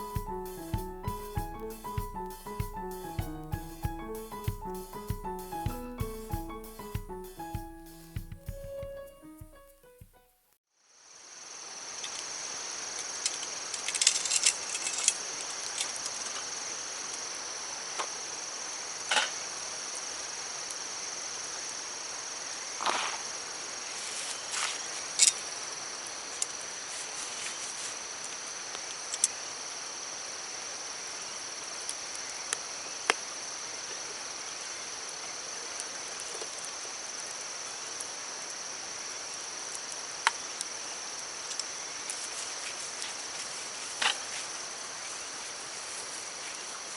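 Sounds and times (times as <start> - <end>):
high-pitched insect chorus: 10.9 - 46.9.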